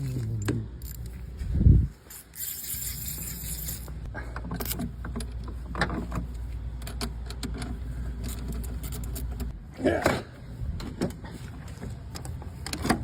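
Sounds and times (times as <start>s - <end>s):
metallic clinks and knocks: 0.0s - 1.2s, 2.0s - 6.2s, 6.8s - 9.5s.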